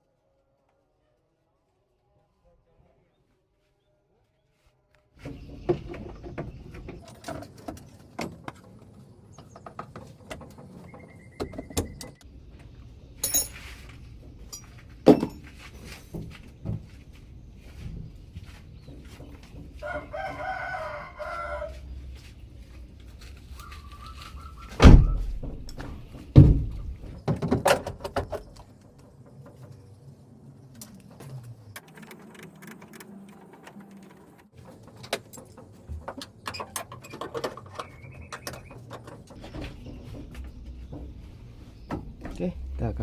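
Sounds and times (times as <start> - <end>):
rooster crowing: 19.8 - 22.0
loud knocks: 24.8 - 28.3.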